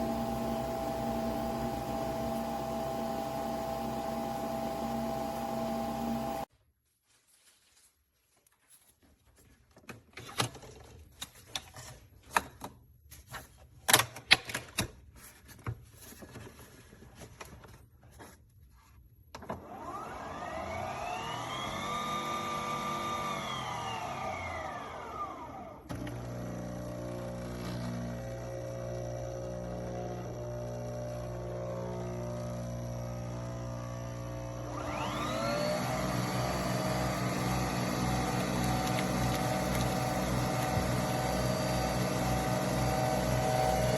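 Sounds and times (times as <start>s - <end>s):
coffee machine motor whine: 0.0s - 6.5s, 19.7s - 43.9s.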